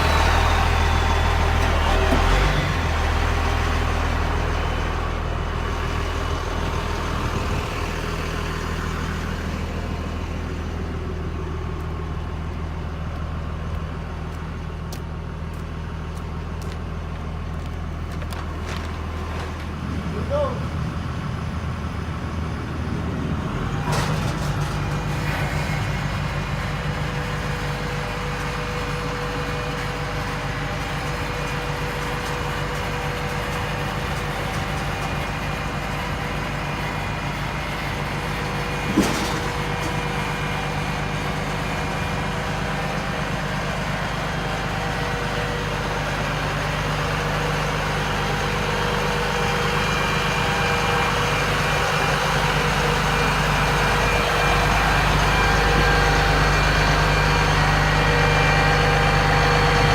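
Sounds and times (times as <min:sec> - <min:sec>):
truck engine running: 0:00.0 - 0:59.9.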